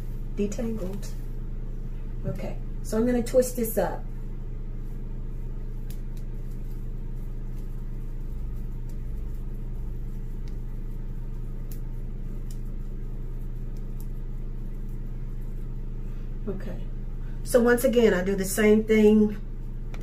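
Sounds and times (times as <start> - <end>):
soft crackles of twisting hair: 0.0 - 2.2, 2.8 - 16.5
fan humming: 0.0 - 20.0.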